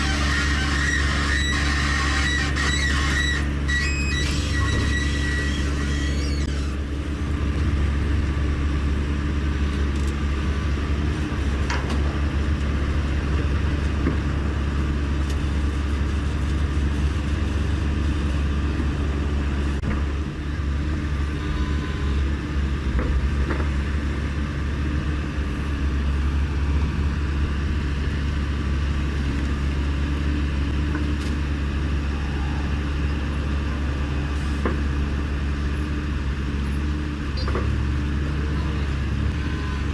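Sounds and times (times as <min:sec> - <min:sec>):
vehicle engine running steadily: 0:00.0 - 0:39.9.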